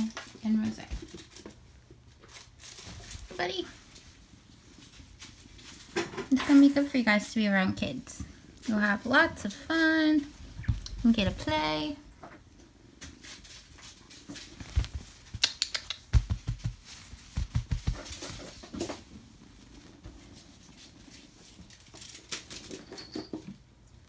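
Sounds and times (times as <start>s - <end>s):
kitten paws pattering: 12.6s - 22.9s.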